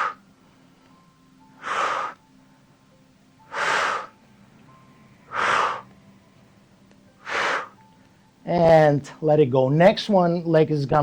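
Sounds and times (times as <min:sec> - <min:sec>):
person breathing out hard: 0:00.0 - 0:00.2, 0:01.6 - 0:02.2, 0:03.5 - 0:04.2, 0:05.3 - 0:05.9, 0:07.2 - 0:07.8.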